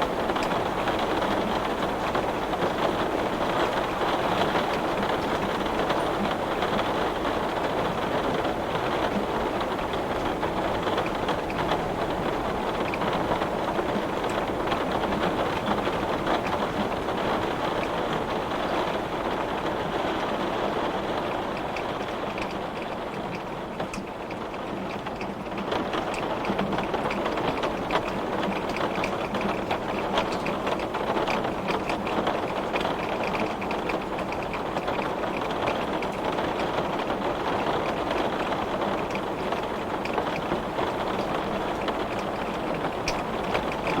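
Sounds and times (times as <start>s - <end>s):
heavy rain on glass: 0.0s - 44.0s.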